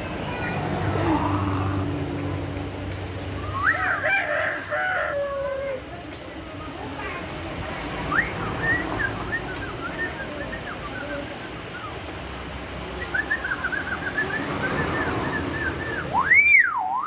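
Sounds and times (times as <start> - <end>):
loud swooping whistle: 13.0 - 17.0.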